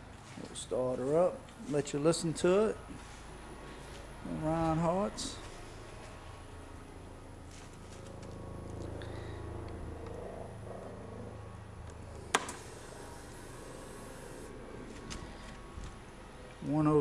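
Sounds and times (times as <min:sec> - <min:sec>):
sharp click: 0:12.3 - 0:12.7.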